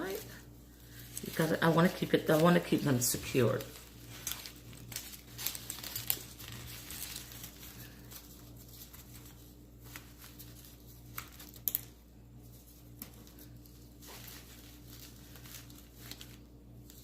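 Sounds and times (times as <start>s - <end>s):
artificial flowers rustling: 0.0s - 17.0s.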